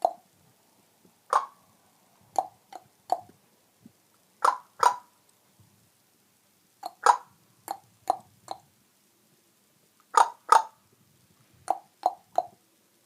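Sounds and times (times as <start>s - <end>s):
parrot clucking: 0.0s - 0.3s, 1.3s - 1.6s, 2.3s - 3.4s, 4.4s - 5.2s, 6.8s - 8.7s, 10.1s - 10.8s, 11.6s - 12.6s.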